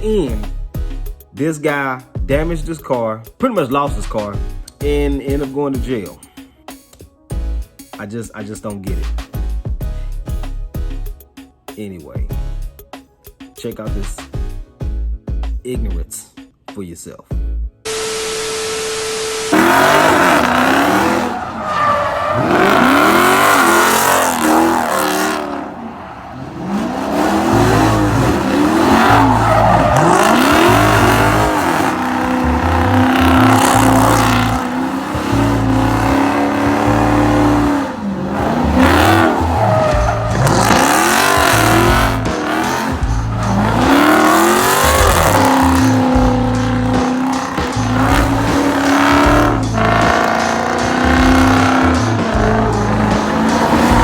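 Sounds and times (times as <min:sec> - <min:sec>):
bass-heavy music beat: 0:00.0 - 0:01.4, 0:02.2 - 0:02.9, 0:03.9 - 0:06.2, 0:07.3 - 0:07.9, 0:08.8 - 0:11.3, 0:12.2 - 0:12.9, 0:13.9 - 0:16.1, 0:17.3 - 0:17.8, 0:19.5 - 0:25.6, 0:26.6 - 0:54.0
car engine revving hard: 0:17.9 - 0:54.0
tires squealing: 0:18.0 - 0:54.0.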